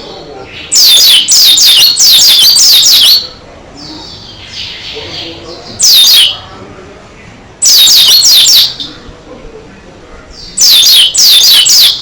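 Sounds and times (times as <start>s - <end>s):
bird singing high notes: 0.7s - 3.2s, 5.8s - 6.4s, 7.6s - 8.9s, 10.5s - 12.0s.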